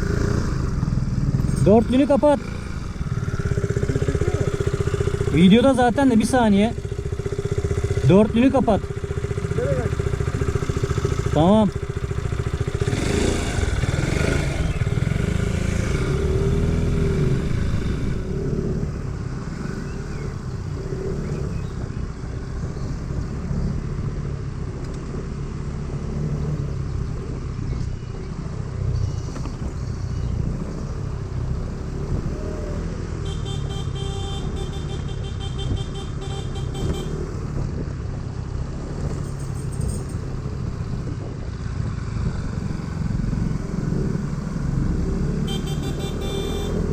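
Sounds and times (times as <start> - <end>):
motorcycle engine running: 0.0 - 46.9
road and wind noise: 0.0 - 46.9.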